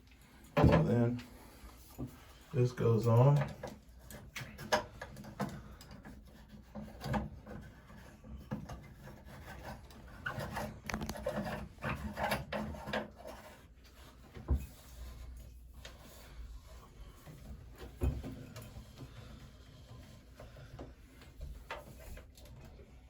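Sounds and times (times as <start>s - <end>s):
small clicks and knocks: 10.2s - 13.4s.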